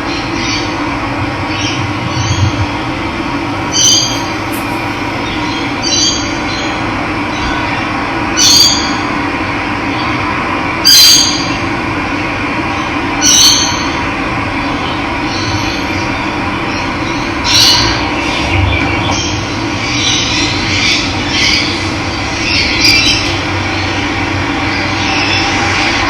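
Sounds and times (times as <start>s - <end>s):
bird short high call: 3.6s - 6.3s.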